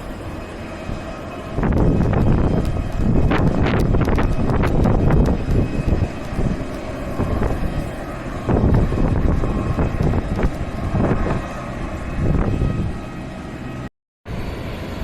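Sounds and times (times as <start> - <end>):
wind buffeting microphone: 0.0 - 14.6
jet engines rumbling: 0.0 - 15.0.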